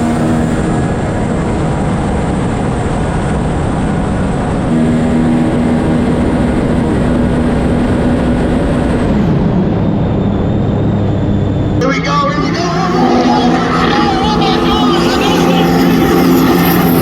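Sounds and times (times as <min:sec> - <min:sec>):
jet ski engines high-revving drone: 0:00.0 - 0:17.0
rushing water wash: 0:11.9 - 0:17.0.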